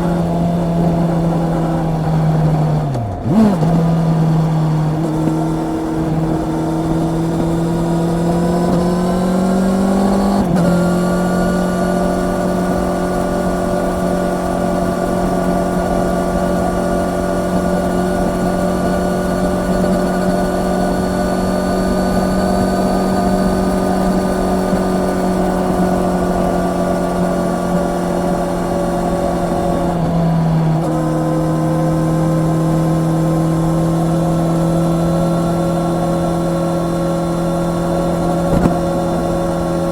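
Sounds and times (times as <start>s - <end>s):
motorcycle engine while riding: 0.0s - 39.9s.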